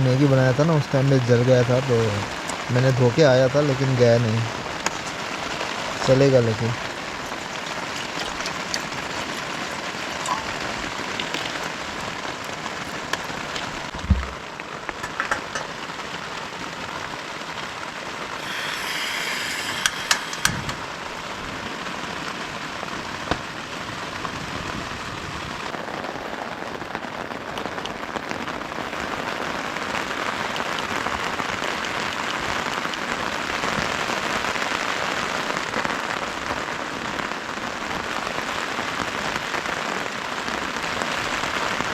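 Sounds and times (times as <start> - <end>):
heavy rain falling: 0.0 - 41.9
low thump: 14.0 - 14.4
knocks and clicks: 15.0 - 15.8, 19.7 - 20.9.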